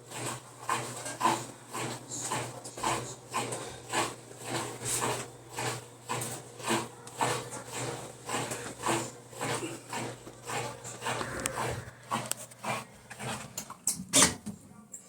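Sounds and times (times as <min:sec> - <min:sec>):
washing machine hum: 0:00.0 - 0:15.0.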